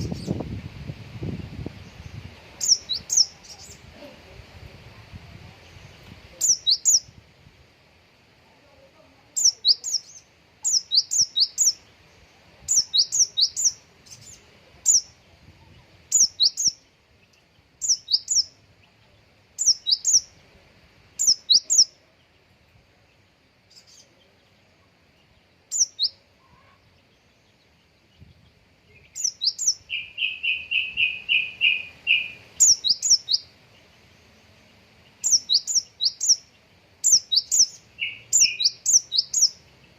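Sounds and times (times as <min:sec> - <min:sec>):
songbird high-pitched whistles: 0:16.2 - 0:16.8, 0:17.8 - 0:18.6, 0:19.6 - 0:20.3, 0:29.0 - 0:33.5, 0:35.2 - 0:36.5, 0:37.1 - 0:39.6.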